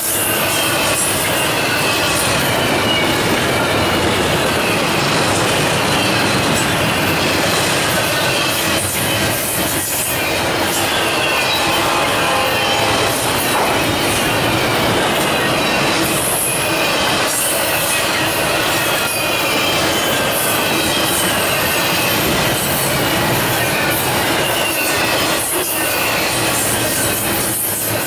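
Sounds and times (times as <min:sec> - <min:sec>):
high wheel squeal: 0:00.0 - 0:28.0
train wheels rolling on rail: 0:00.0 - 0:28.0
wheels clicking over rail joints: 0:12.7 - 0:28.0.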